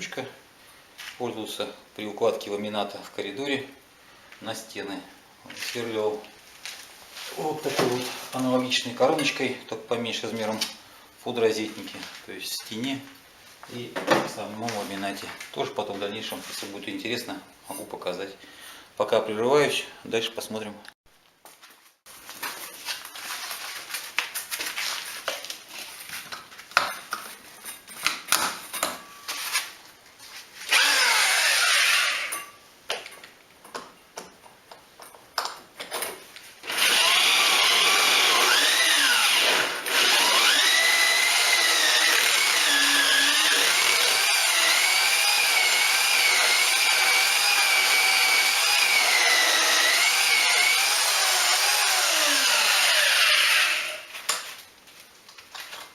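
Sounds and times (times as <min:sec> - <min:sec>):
electric drill boring through wall: 0:30.7 - 0:32.3, 0:36.6 - 0:54.1.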